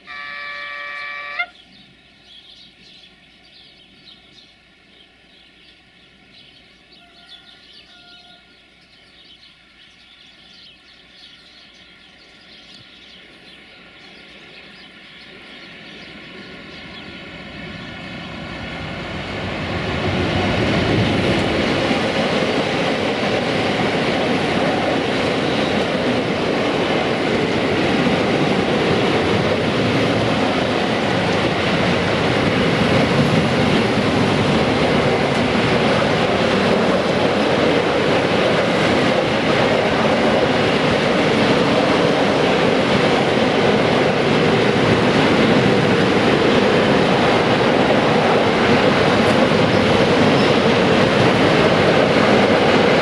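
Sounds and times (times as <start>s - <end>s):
train horn blast: 0.0s - 1.6s
freight train passing: 0.0s - 53.0s.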